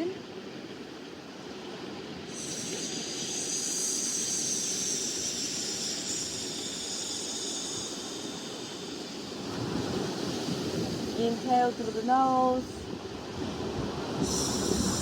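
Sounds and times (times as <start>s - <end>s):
person exhaling a long shhh: 2.3s - 9.6s, 14.2s - 15.0s.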